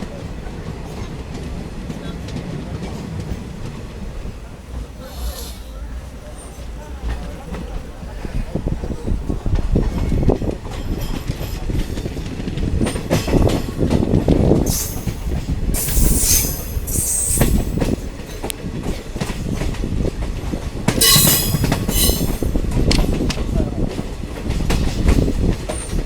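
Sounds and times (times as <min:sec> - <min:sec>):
train wheels rumbling on track: 0:00.0 - 0:26.0
train wheel squeal: 0:05.0 - 0:06.7, 0:14.7 - 0:18.1, 0:21.0 - 0:22.7.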